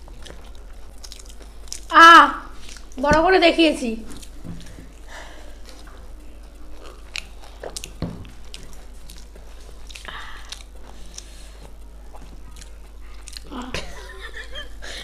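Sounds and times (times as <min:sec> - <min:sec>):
biting and chewing: 0:00.0 - 0:01.9, 0:02.5 - 0:03.0, 0:04.0 - 0:14.5
wet mouth clicks: 0:00.2 - 0:01.9, 0:06.6 - 0:13.7
crunchy bites: 0:06.5 - 0:13.6.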